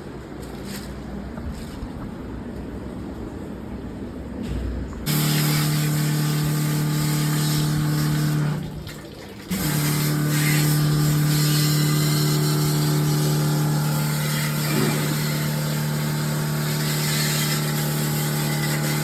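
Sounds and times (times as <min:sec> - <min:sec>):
jet-wash pump humming: 0:04.4 - 0:19.0
water spray hissing: 0:05.1 - 0:08.7, 0:09.5 - 0:19.0.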